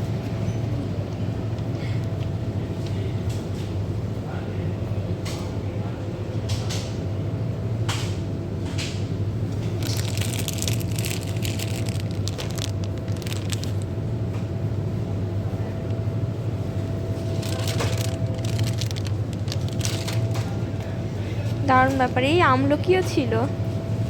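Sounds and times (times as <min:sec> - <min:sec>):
steady low hum: 0:00.0 - 0:24.0
crackling and crinkling: 0:08.8 - 0:14.5, 0:16.9 - 0:22.4.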